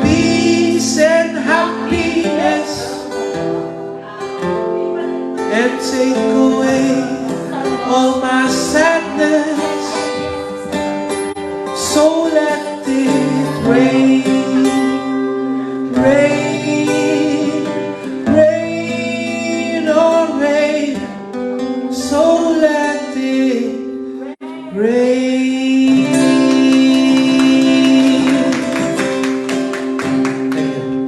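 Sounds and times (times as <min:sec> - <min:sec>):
acoustic guitar strumming: 0:00.0 - 0:31.0
person singing long notes: 0:11.4 - 0:20.8, 0:24.2 - 0:29.2.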